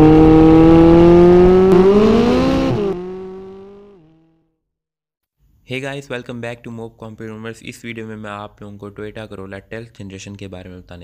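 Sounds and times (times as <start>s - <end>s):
car engine revving: 0.0s - 4.3s.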